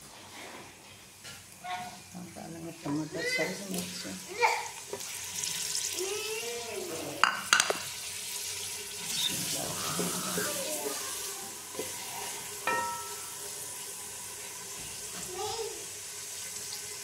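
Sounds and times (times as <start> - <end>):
vegetables sizzling in hot oil: 0.0 - 17.0
spatula knocking against pot: 12.6 - 13.4.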